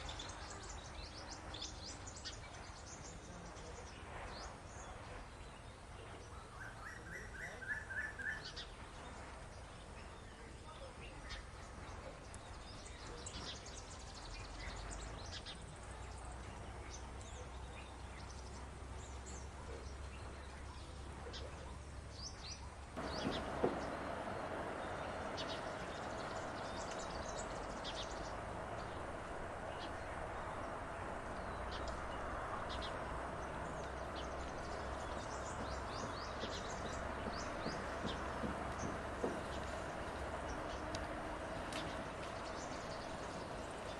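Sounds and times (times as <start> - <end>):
steady background noise: 0.0 - 43.9
wild birds chirping: 0.0 - 43.9
thump: 23.0 - 24.1.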